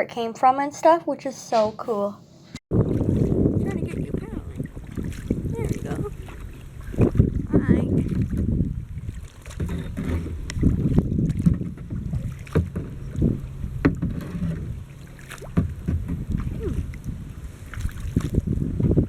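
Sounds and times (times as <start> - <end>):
wind rumble on microphone: 2.7 - 19.0
kayak paddle strokes in water: 2.8 - 19.0.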